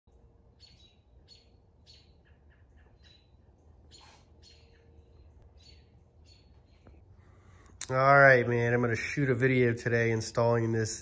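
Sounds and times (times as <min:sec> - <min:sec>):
faint bird chirps: 0:00.1 - 0:07.7.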